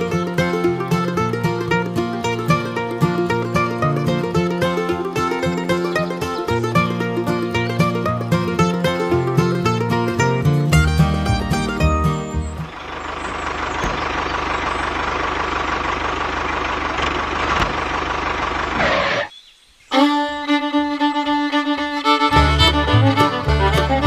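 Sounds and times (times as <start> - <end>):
fiddle music with beat: 0.0 - 12.8, 19.9 - 24.0.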